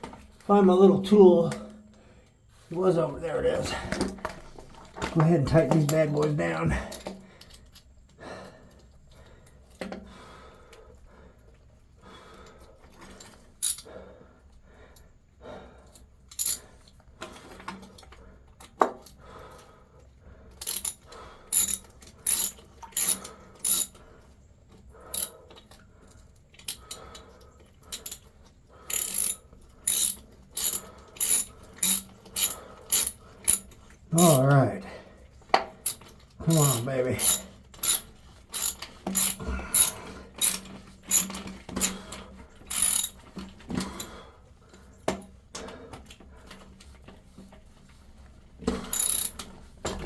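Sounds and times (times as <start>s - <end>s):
hand ratchet clicking: 13.6s - 13.9s, 16.3s - 16.6s, 20.6s - 24.0s, 25.1s - 25.4s, 26.6s - 27.2s, 27.9s - 28.2s, 28.8s - 34.6s, 35.8s - 43.2s, 48.7s - 49.5s
metal clinks: 28.9s - 34.5s, 35.9s - 42.0s, 42.7s - 43.2s, 48.9s - 49.4s.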